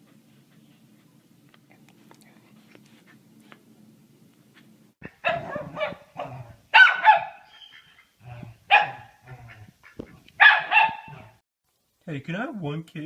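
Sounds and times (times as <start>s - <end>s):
dog barking: 5.2s - 7.5s, 8.7s - 9.6s, 10.4s - 11.4s.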